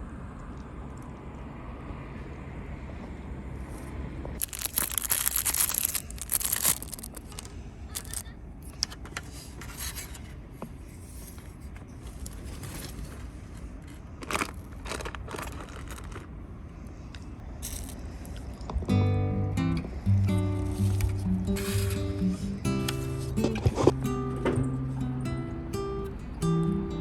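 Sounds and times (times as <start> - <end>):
low outdoor rumble: 0.0 - 27.0
rustling and scraping handling: 3.7 - 16.4, 17.0 - 18.4, 20.3 - 24.0.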